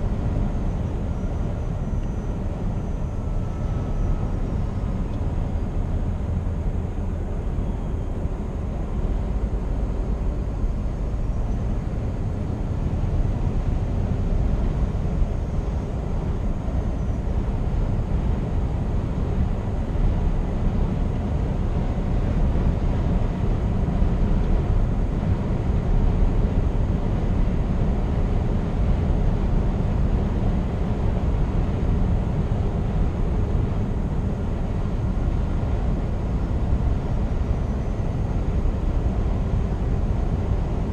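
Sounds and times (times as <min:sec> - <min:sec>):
road and tyre noise: 0:00.0 - 0:40.9
truck diesel engine drone: 0:00.0 - 0:40.9.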